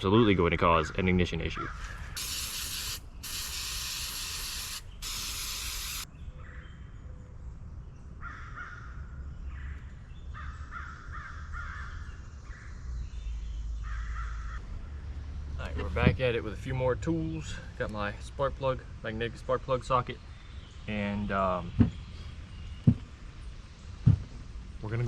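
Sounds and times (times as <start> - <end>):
crows cawing: 1.6 - 2.2, 8.2 - 9.7, 10.3 - 12.2, 13.8 - 14.6
aerosol spray hissing: 2.2 - 6.0.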